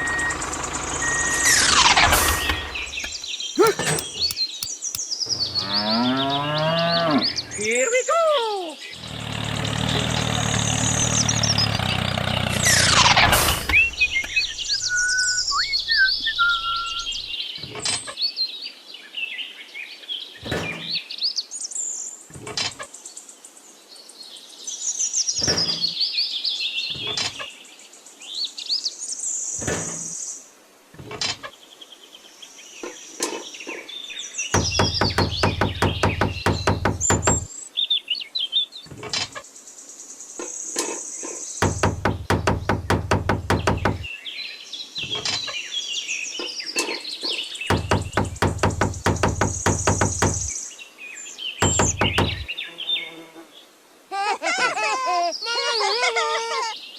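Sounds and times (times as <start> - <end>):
birds chirping: 0.0 - 17.8, 33.6 - 37.6, 41.4 - 53.1
sharp knocks: 2.7 - 5.0, 34.6 - 37.5, 41.6 - 44.1, 47.7 - 50.5, 51.6 - 52.5.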